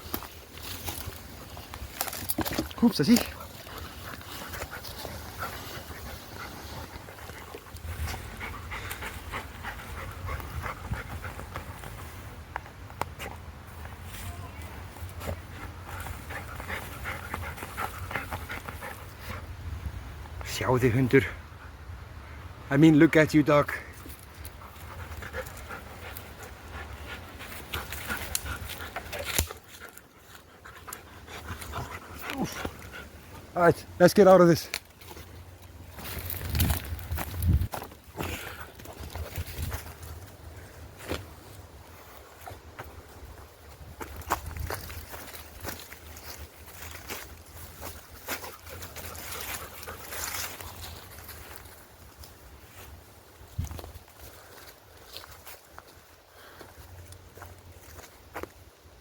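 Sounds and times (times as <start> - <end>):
twigs and leaves crackling: 0.0 - 19.2, 23.9 - 58.7
dog panting: 3.1 - 12.1, 15.2 - 19.5, 24.4 - 33.6, 47.8 - 50.8
short crackles and rustles: 34.6 - 41.5.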